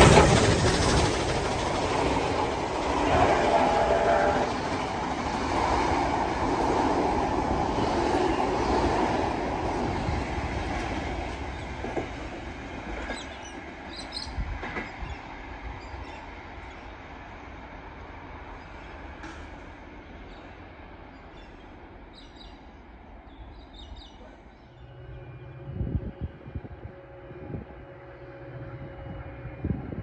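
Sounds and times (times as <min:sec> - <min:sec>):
train carriages rolling on rails: 0:00.0 - 0:17.3.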